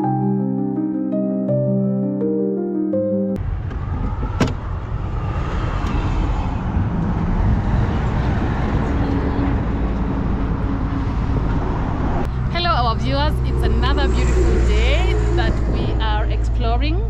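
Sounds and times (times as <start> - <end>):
music intro: 0.0 - 3.4
vehicle road noise: 3.4 - 17.0.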